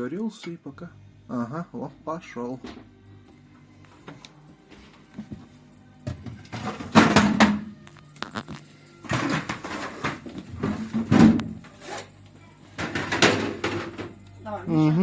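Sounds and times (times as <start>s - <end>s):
faint low compressor hum: 0.0s - 6.5s
knocks and rattles on refrigerator: 6.1s - 7.7s, 9.1s - 11.6s.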